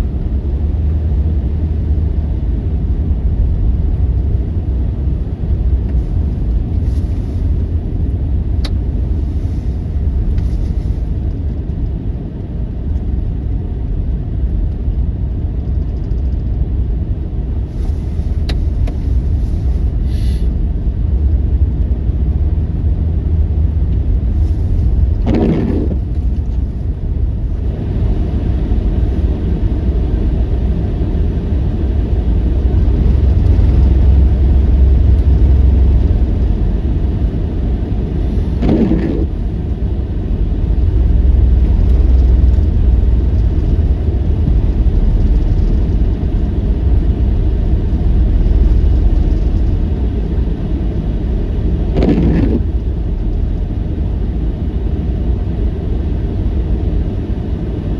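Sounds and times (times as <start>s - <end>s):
blizzard wind on microphone: 16.8s - 57.9s.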